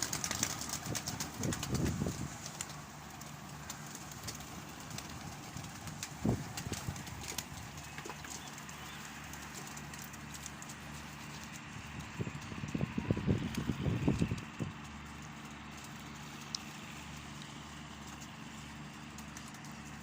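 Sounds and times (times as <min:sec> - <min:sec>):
pigeons cooing softly: 0:00.0 - 0:11.8.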